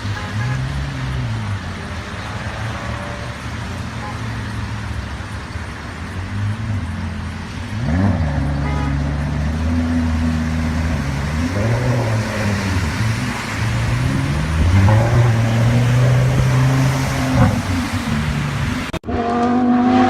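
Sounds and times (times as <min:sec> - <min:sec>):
car engine revving: 0:06.1 - 0:20.0.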